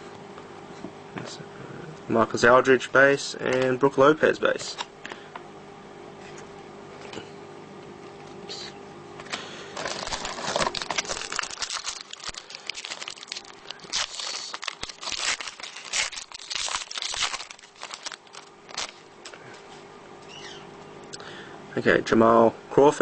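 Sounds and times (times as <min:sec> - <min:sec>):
card pack wrapper crinkling: 0:09.3 - 0:19.1
wrapper tearing: 0:09.8 - 0:19.1.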